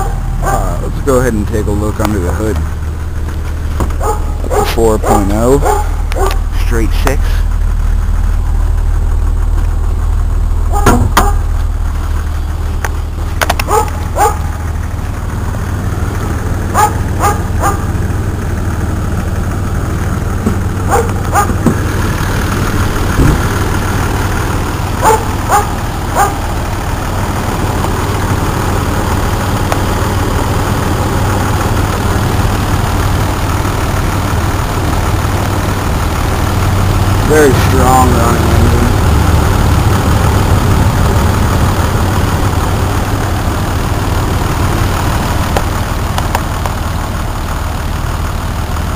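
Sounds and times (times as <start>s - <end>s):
dog barking: 0.0s - 0.8s, 4.0s - 6.4s, 10.7s - 11.5s, 13.6s - 14.5s, 16.7s - 17.9s, 20.9s - 21.6s, 25.0s - 26.4s
car engine idling: 0.0s - 48.9s.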